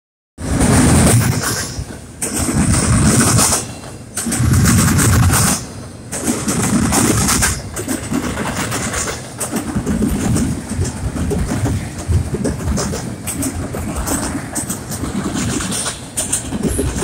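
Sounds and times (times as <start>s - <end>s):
freight train rumble: 0.4s - 17.0s
wheels clattering on rails: 0.4s - 17.0s.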